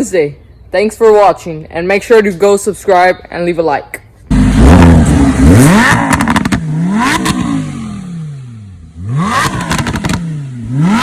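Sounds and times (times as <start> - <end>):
car engine revving: 4.3 - 11.0
exhaust crackles: 4.3 - 11.0.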